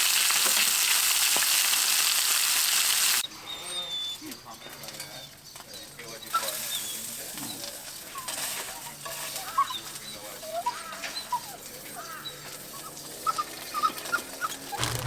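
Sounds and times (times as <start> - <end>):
birds calling: 3.1 - 15.0.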